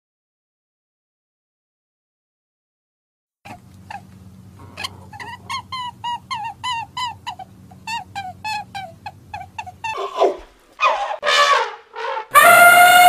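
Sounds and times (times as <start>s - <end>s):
small animal squeaking: 3.5s - 11.5s
low steady hum: 3.5s - 13.0s
elephant trumpeting: 9.8s - 13.0s.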